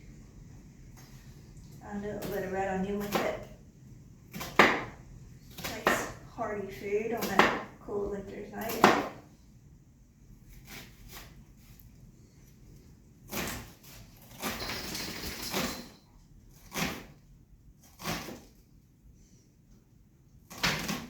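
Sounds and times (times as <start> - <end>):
cookware and utensils clattering: 14.4 - 16.1.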